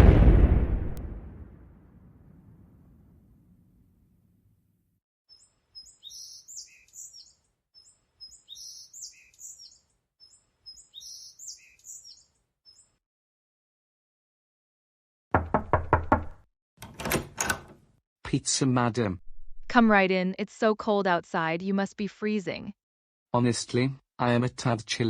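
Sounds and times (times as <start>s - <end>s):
songbird chirping and trilling: 5.3s - 13.0s
loud knocking: 15.4s - 16.4s.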